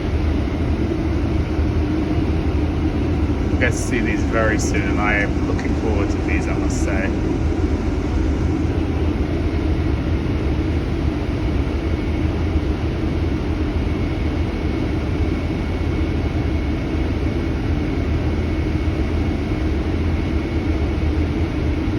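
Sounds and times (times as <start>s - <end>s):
faint high-pitched whine: 3.4s - 7.4s.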